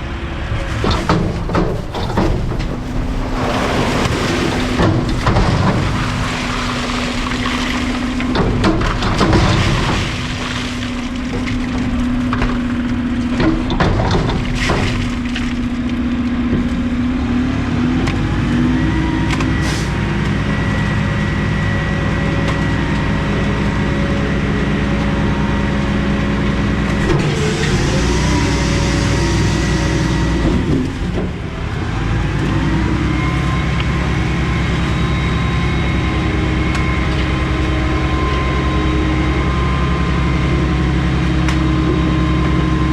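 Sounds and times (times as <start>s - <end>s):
garbage truck engine revving: 0.0s - 42.9s
hydraulic whine: 0.0s - 42.9s
knocks and clatters: 0.7s - 16.9s
hiss: 27.4s - 30.4s.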